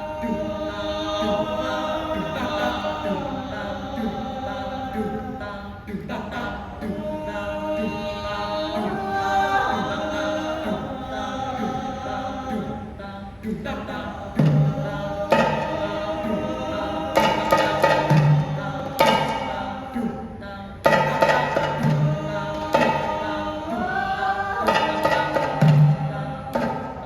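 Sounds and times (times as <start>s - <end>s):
group of voices singing and chanting: 0.0s - 27.0s
percussion with low thumps: 13.5s - 27.0s.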